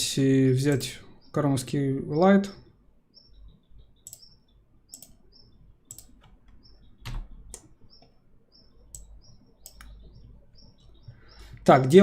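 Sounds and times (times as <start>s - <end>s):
faint high chirps: 2.5s - 12.0s
mouse and keyboard clicks: 4.0s - 5.2s, 5.9s - 6.4s, 8.9s - 10.0s.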